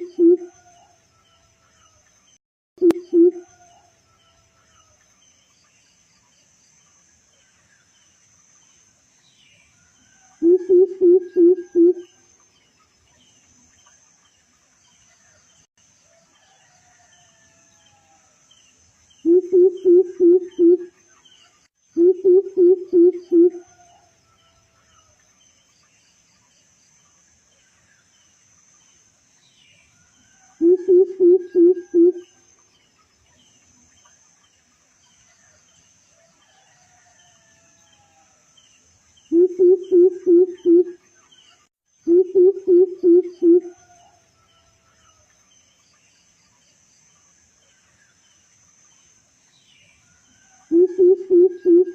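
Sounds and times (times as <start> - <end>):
faint bird chirps: 0.0 - 4.3, 9.4 - 14.3, 19.2 - 24.4, 29.7 - 35.6, 39.2 - 46.6, 49.7 - 51.9
distant rooster crowing: 3.3 - 4.5, 10.2 - 12.2, 16.1 - 18.4, 30.4 - 32.4, 36.3 - 38.5, 42.9 - 45.3
faint high-pitched hum: 17.2 - 36.4, 37.3 - 51.9.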